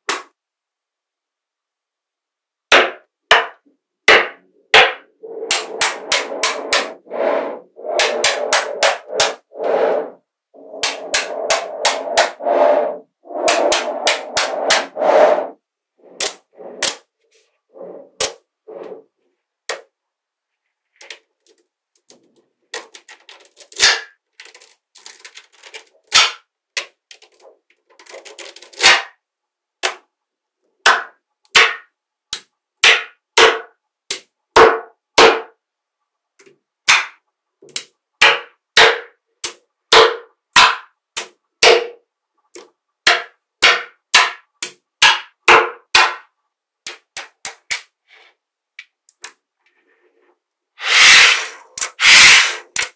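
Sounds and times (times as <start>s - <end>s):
rattle of balls shifting: 20.9s - 26.3s, 26.9s - 28.8s.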